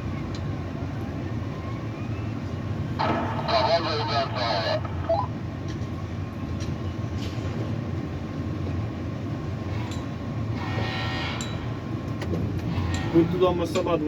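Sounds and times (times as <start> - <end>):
low mechanical rumble: 0.0 - 14.0.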